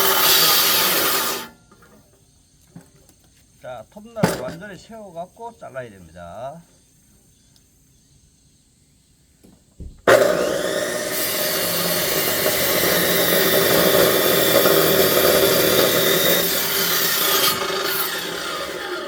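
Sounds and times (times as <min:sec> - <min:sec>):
electric saw cutting log: 0:00.0 - 0:01.6, 0:10.1 - 0:19.0
saw motor whine: 0:00.0 - 0:01.6, 0:10.1 - 0:19.0.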